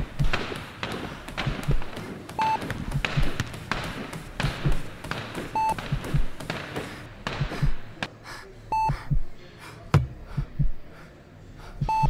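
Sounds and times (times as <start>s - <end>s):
heartbeat thumps: 0.0s - 8.0s, 8.8s - 9.4s, 10.0s - 10.8s, 11.8s - 12.0s
heart monitor beep: 2.4s - 2.7s, 5.5s - 6.4s, 8.7s - 9.3s, 11.8s - 12.0s.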